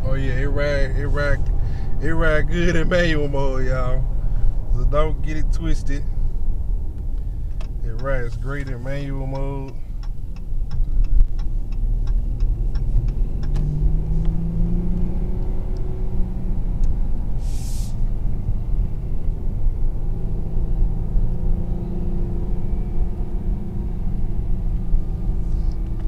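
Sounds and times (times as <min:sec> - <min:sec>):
car engine and road rumble: 0:00.0 - 0:26.0
steady ticks: 0:07.6 - 0:14.4
short hiss: 0:17.4 - 0:18.1.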